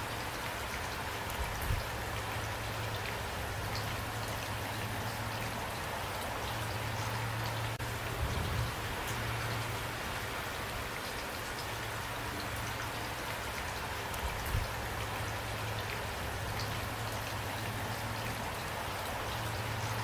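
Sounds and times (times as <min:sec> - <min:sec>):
steady rainfall: 0:00.0 - 0:20.0.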